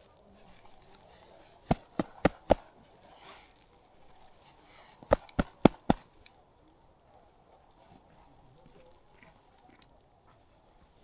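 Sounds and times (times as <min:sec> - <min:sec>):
shoe knocking against hard surface: 0:01.7 - 0:02.6.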